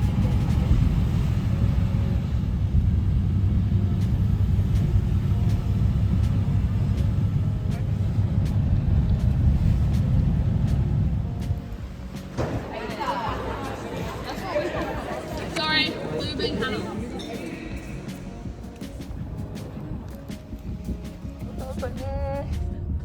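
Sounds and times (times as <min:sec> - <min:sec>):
vehicle rumble from inside: 0:00.0 - 0:12.1.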